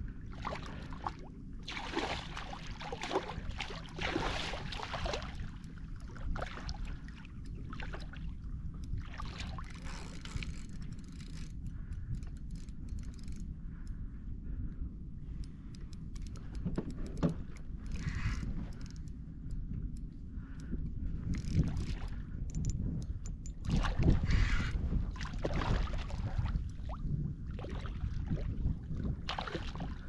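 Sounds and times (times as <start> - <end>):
wind rumble on microphone: 0.0 - 30.0
water splashing around kayak: 0.2 - 11.4, 23.6 - 30.0.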